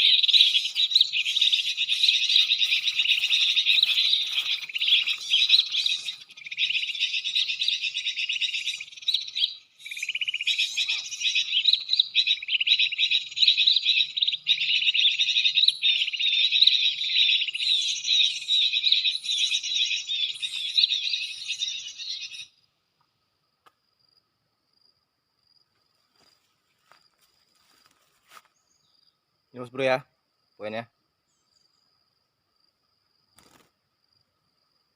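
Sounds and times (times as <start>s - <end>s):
rapid high bird chirping: 0.0s - 22.5s.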